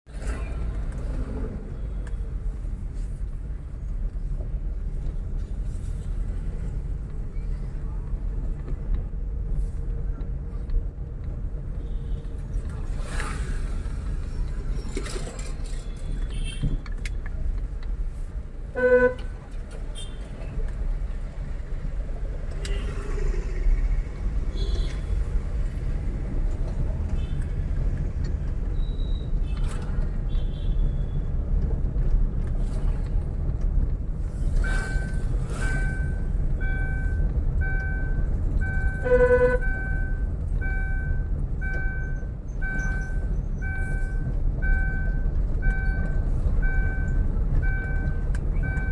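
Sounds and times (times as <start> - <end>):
vehicle road and engine rumble: 0.0 - 48.9
horn toots: 38.9 - 39.8.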